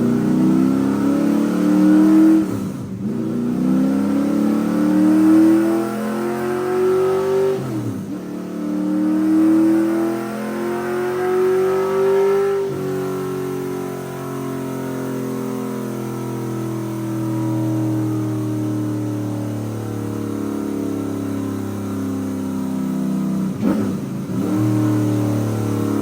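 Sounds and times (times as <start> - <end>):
engine revving: 0.0 - 14.8, 23.4 - 26.0.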